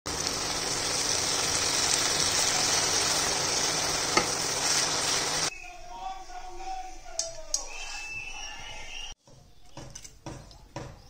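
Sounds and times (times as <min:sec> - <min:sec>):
cabbage sizzling in a pan: 0:00.1 - 0:05.5.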